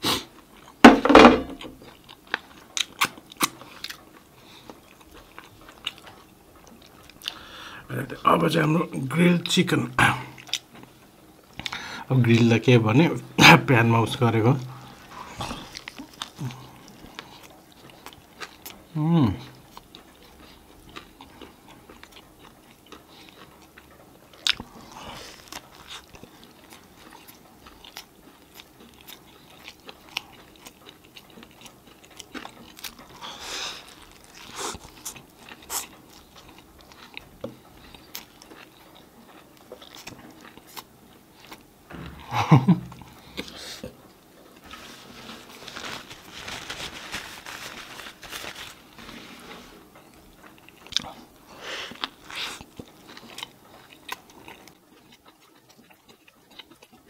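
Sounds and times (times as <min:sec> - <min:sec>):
person biting and chewing: 0:24.4 - 0:42.0, 0:50.5 - 0:57.0.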